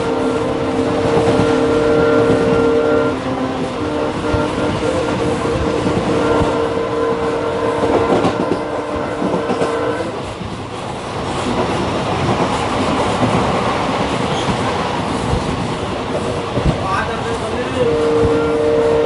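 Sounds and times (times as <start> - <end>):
multi-tone train horn blast: 0.0 - 10.3, 17.6 - 19.0
train wheels rumbling on track: 0.0 - 19.0.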